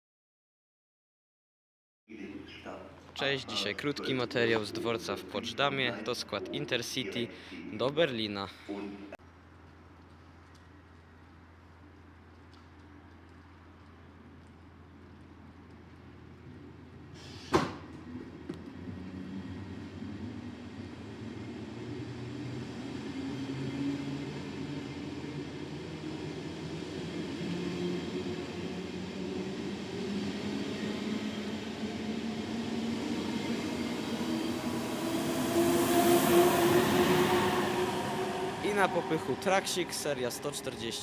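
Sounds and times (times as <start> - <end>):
electric train rolling by: 3.3 - 7.7, 14.7 - 41.0.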